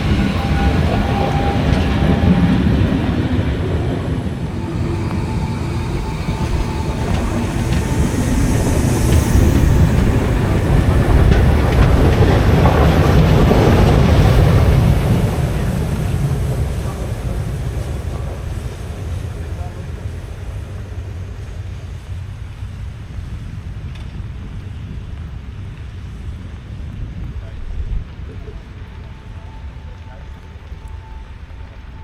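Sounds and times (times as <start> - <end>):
wheel clatter: 0.0 - 23.0
train rumbling on rails: 0.0 - 32.0.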